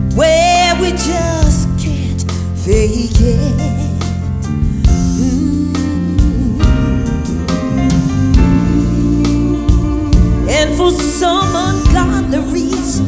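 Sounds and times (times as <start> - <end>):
drum kit hits: 0.0 - 13.0
live band playing soul ballad: 0.0 - 13.0
wordless singing: 5.2 - 13.0.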